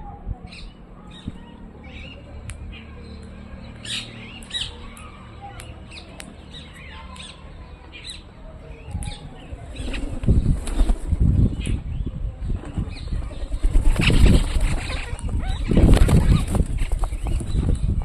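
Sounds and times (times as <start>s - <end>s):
birds chirping and squawking: 0.0s - 18.0s
low fluttering wingbeats: 9.0s - 18.0s.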